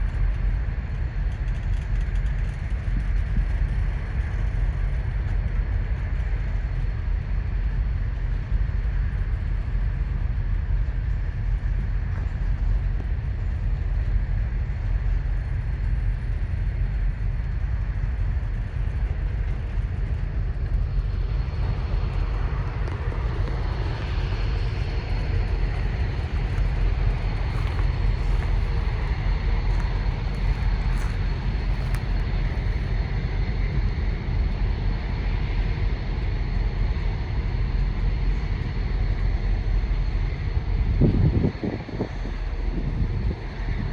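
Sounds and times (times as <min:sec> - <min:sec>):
work train rumbling by: 0:15.5 - 0:35.4.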